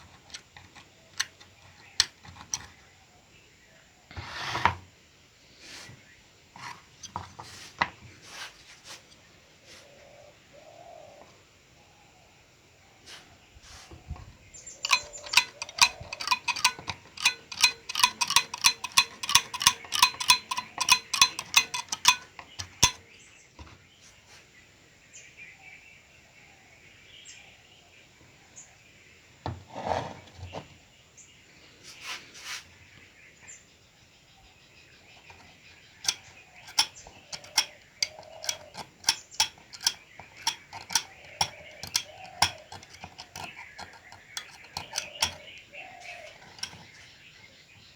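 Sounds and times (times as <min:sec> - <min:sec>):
rapid metallic tapping: 0:14.8 - 0:23.0, 0:36.0 - 0:45.6, 0:46.4 - 0:47.0
scattered clicks: 0:14.9 - 0:23.0.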